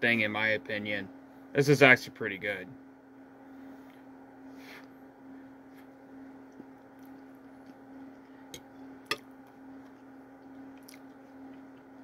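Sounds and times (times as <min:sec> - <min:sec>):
steady low hum: 0:00.0 - 0:12.0
quiet chewing: 0:05.7 - 0:12.0.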